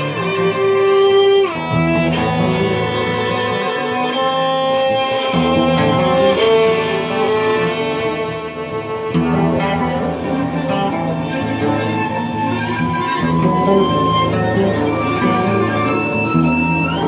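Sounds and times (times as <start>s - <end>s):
violin sustained notes: 0.0s - 17.0s
acoustic guitar chords: 1.5s - 17.0s.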